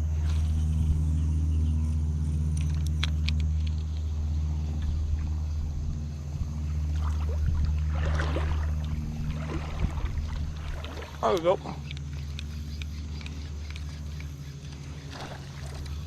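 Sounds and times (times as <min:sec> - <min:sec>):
low motor drone: 0:00.0 - 0:16.0.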